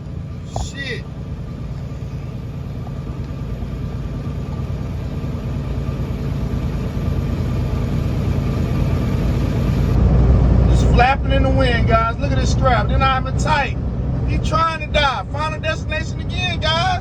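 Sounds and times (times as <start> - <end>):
road noise: 0.0 - 17.0
truck engine rumble: 0.0 - 17.0.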